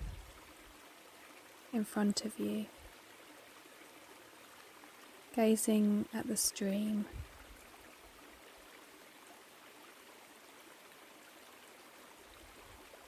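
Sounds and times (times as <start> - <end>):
stream flowing over rocks: 0.0 - 13.0.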